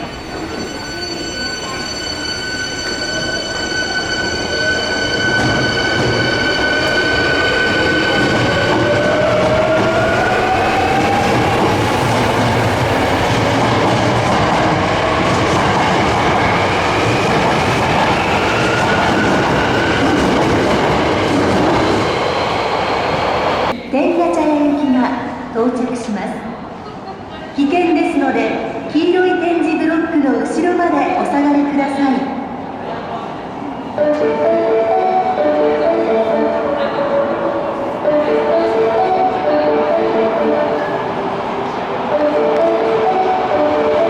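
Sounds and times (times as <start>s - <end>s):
train wheels clattering on rails: 5.4s - 23.4s.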